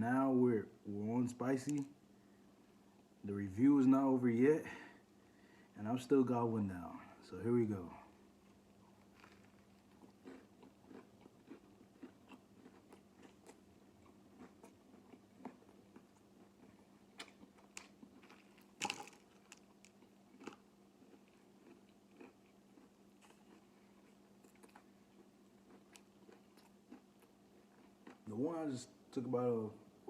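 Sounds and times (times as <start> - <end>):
crunchy chewing: 8.4 - 28.3.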